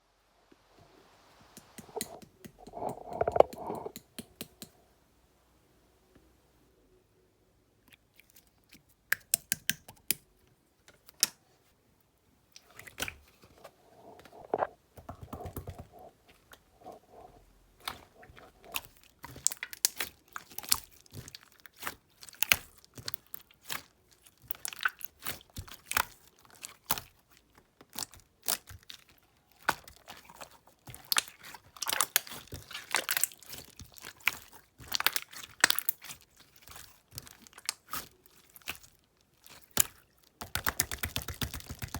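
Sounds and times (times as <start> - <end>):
slime squished by hand: 17.8 - 41.9.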